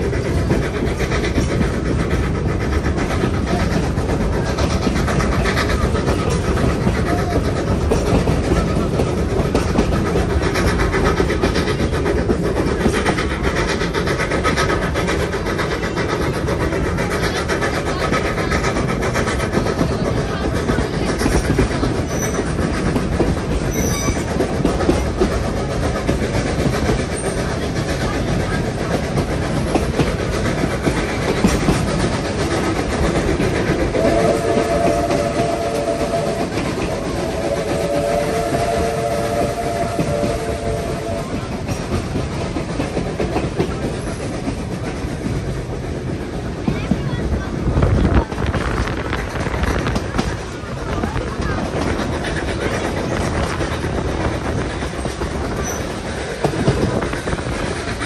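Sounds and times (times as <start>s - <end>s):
steam train rumbling: 0.0s - 58.0s
steam whistle: 33.9s - 41.4s.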